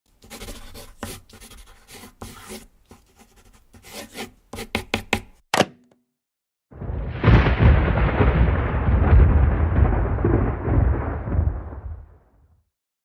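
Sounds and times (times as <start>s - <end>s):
knocking and scraping taps: 0.2s - 5.4s.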